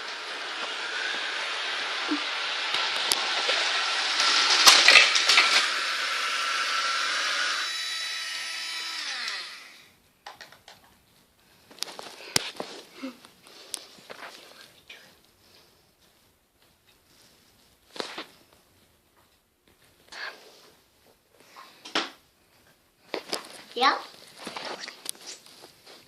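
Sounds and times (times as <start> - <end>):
model train whirring on track: 0.0 - 9.8.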